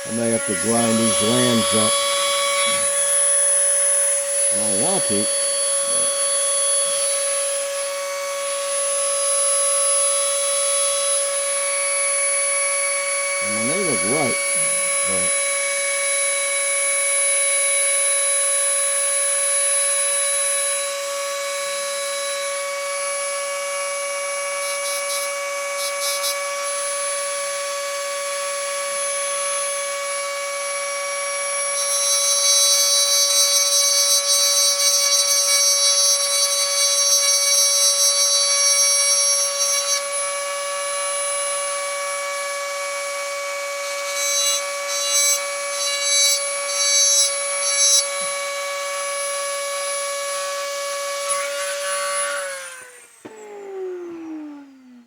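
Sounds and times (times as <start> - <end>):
bit grinding putty: 0.0 - 3.7, 13.4 - 15.4
rotary tool whining: 0.0 - 55.0.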